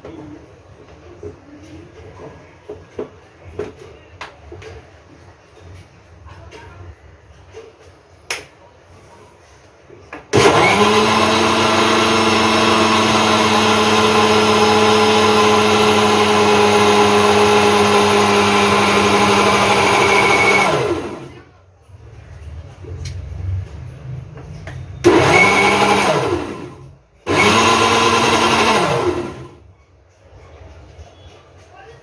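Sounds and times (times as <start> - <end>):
blender motor running: 10.4 - 21.3, 25.0 - 29.6.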